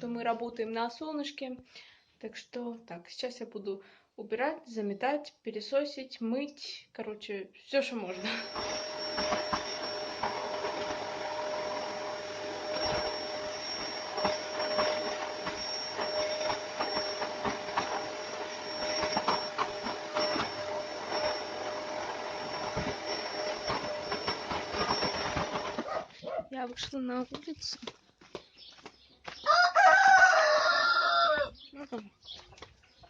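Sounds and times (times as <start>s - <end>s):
vacuum cleaner running: 7.9s - 26.3s.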